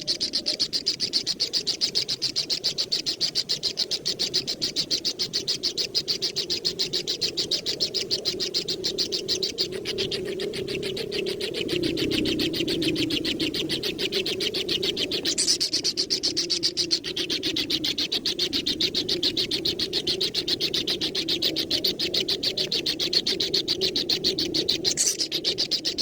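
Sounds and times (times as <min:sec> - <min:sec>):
young bird calling rapidly: 0:15.1 - 0:18.1, 0:24.8 - 0:26.0.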